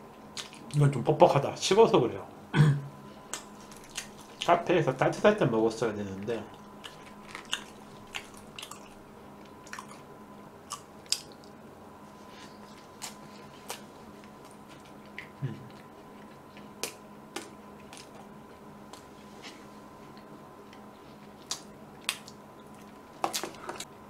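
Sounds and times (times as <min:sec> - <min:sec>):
person chewing bread: 0:03.3 - 0:04.5, 0:06.5 - 0:11.6, 0:12.2 - 0:24.0.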